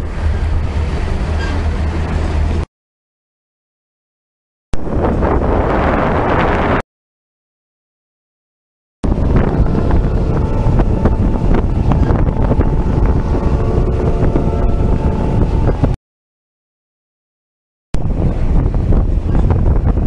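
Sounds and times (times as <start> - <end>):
wind buffeting microphone: 4.8 - 6.8, 9.0 - 16.0, 18.0 - 20.0.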